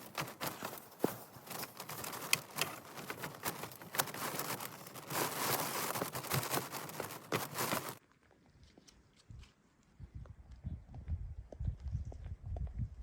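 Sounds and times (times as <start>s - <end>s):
dry leaves and twigs crackling: 0.0s - 8.0s
twigs snapping: 0.0s - 8.0s.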